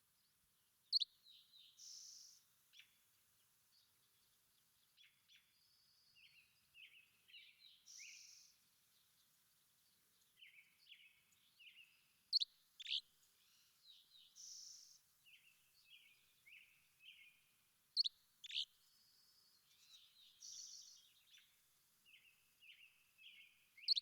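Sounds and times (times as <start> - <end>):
small birds chirping: 0.0 - 24.0
sharp bird calls: 12.3 - 13.0, 18.0 - 18.7, 23.3 - 24.0.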